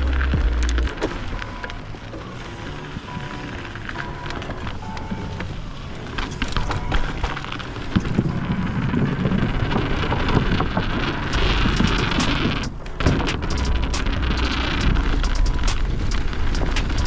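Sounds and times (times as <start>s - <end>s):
bike rattles and knocks: 11.3s - 17.0s.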